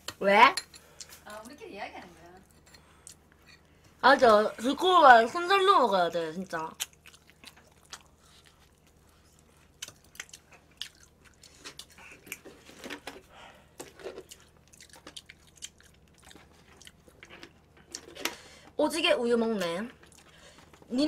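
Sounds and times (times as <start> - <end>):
chewing and biting chicken: 6.8 - 12.5, 13.9 - 18.1.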